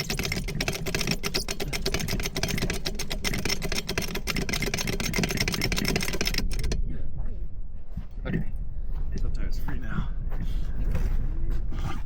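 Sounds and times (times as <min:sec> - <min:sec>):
wrench rapid clicking: 0:00.0 - 0:06.8.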